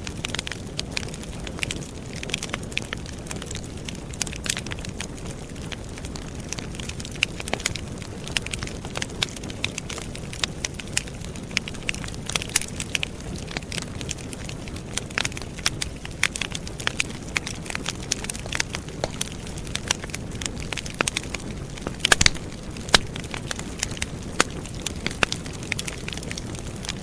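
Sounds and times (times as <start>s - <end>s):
low rush of flames: 0.1s - 27.0s
crackling wood pops: 6.0s - 27.0s.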